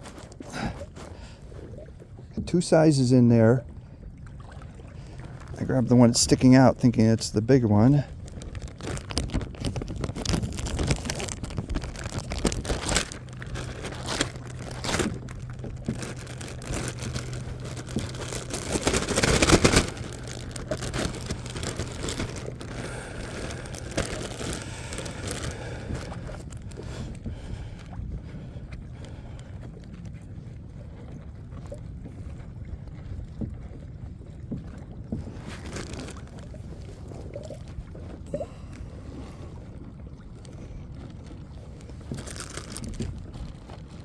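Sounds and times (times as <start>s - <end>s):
gear rustling and knocking: 8.2s - 27.0s.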